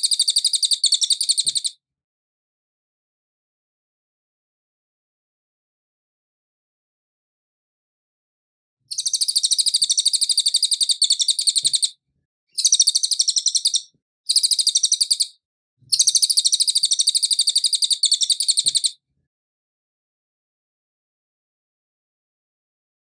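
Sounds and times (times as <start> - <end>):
bird singing fast trills: 0.0 - 1.8, 8.9 - 19.0.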